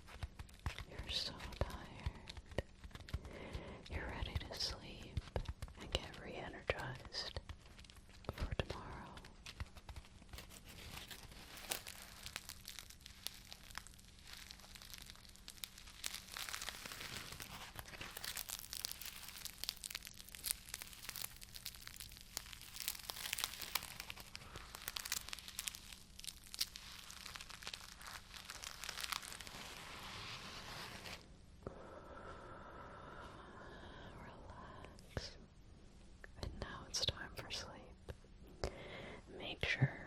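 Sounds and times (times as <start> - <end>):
crinkling and crackling: 0.0 - 31.3
faint steady hum: 0.0 - 40.0.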